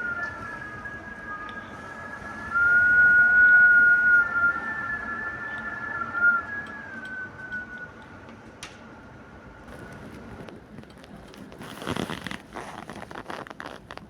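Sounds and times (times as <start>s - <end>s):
crackling and rustling: 9.7s - 14.0s.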